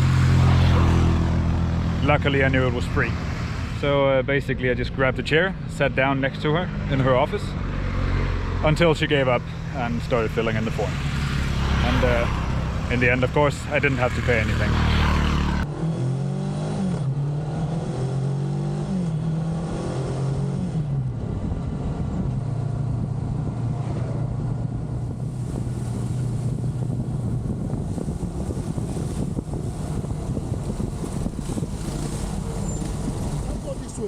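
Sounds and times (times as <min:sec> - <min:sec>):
wind rushing over microphone: 0:00.0 - 0:34.0
motorcycle engine pulling through gears: 0:28.8 - 0:34.0.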